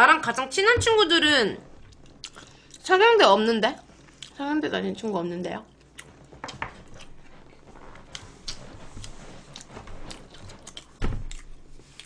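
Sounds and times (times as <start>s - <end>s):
chewing and small clicks: 1.9s - 2.9s, 4.0s - 4.4s.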